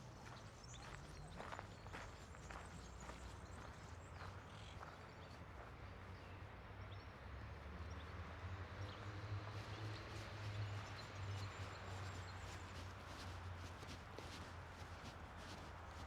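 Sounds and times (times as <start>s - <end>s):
footsteps on a path: 0.1s - 5.3s, 11.7s - 16.0s.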